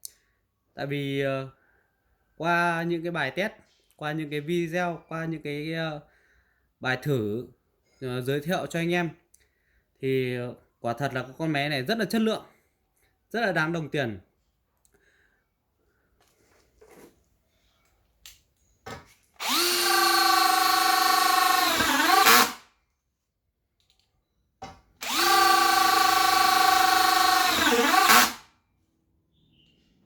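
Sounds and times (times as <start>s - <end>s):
cordless drill motor whirring: 19.4s - 22.6s, 25.0s - 28.4s.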